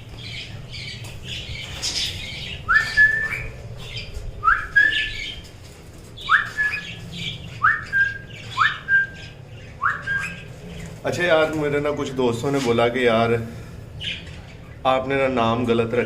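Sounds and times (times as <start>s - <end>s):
rising whistled bird call: 2.6s - 3.6s, 4.4s - 5.3s, 6.2s - 10.5s
budgerigars chattering: 6.2s - 12.2s, 14.0s - 15.4s.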